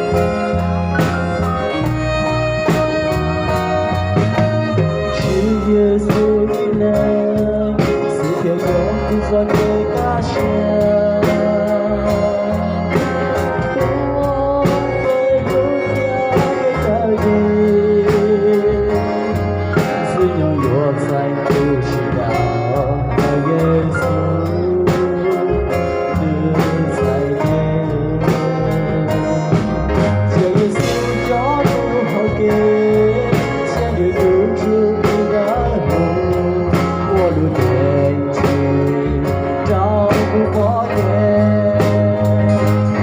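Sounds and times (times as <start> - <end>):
guitar: 0.0 - 43.0
person singing: 0.0 - 43.0
steady drum beat: 0.0 - 43.0.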